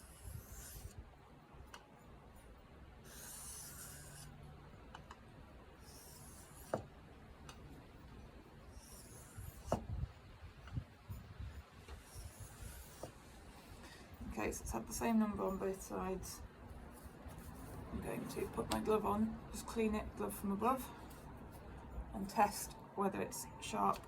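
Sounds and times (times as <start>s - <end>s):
knife scraping on whetstone: 0.0s - 1.0s, 3.1s - 4.3s, 5.8s - 6.8s, 8.7s - 9.8s, 11.9s - 13.2s.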